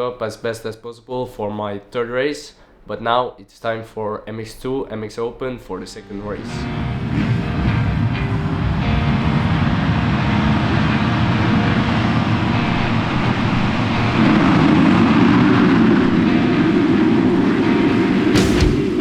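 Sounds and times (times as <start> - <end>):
motocross bikes engines: 6.4 - 19.0.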